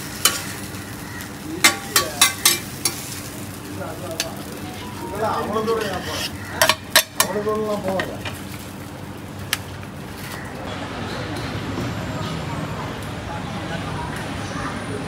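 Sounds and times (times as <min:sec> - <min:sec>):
omelette sizzling in a wok: 0:00.0 - 0:10.5
metal spatula clinking: 0:01.6 - 0:03.2, 0:04.2 - 0:07.4.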